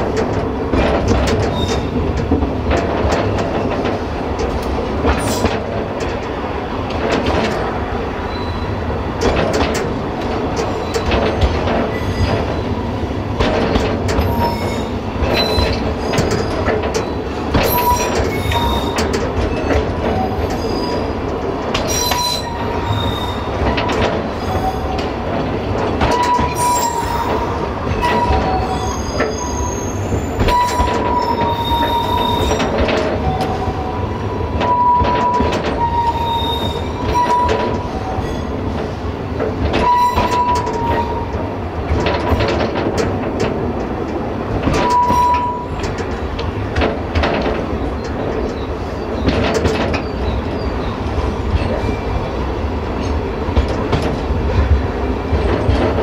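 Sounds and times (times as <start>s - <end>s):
clicks over rail joints: 0.0s - 7.9s, 9.1s - 52.0s, 52.9s - 56.0s
train rumbling: 0.0s - 56.0s
train wheels squealing: 8.2s - 8.8s, 14.2s - 21.1s, 21.9s - 23.6s, 26.1s - 33.9s, 34.6s - 38.5s, 39.8s - 41.3s, 44.8s - 45.8s.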